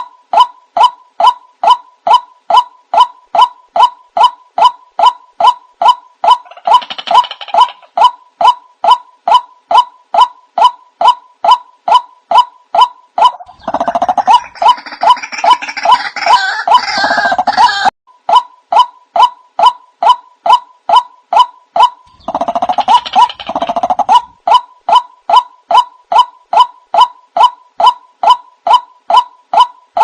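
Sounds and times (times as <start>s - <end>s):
recorded bird calls: 0.0s - 30.0s
harsh jumble of bird calls: 13.3s - 17.8s, 21.8s - 24.6s.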